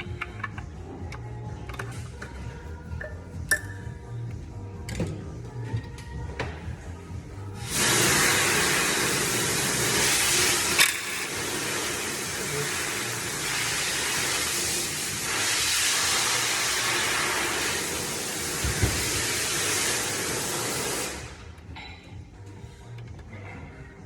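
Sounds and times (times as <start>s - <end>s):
loud hissing noise: 7.6s - 21.5s.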